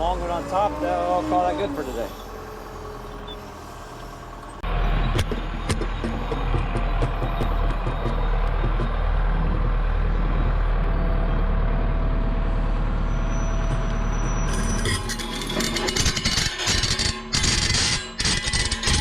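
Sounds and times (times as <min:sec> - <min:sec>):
diesel engine rumbling: 0:00.0 - 0:16.2
music: 0:05.3 - 0:09.8.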